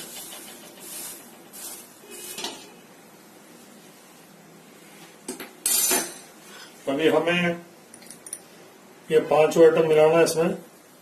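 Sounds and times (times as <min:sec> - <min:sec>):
metal cookware clattering: 0:05.6 - 0:06.3.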